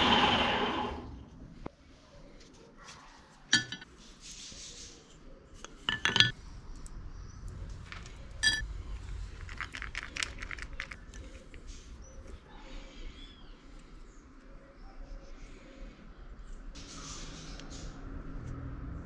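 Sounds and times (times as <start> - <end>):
metal pieces clinking: 3.6 - 3.8, 5.9 - 6.4, 7.9 - 8.6.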